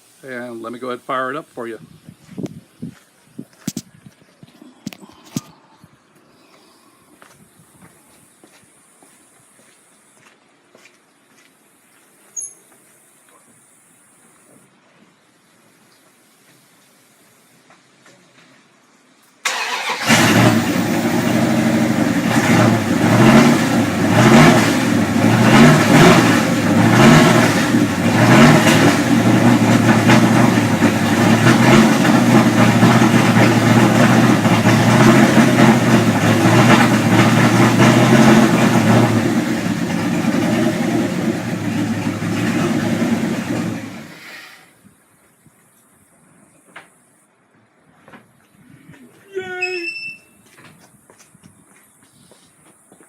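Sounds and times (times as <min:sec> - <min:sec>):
car engine idling: 0:19.4 - 0:44.3
car engine starting and revving: 0:19.4 - 0:44.5.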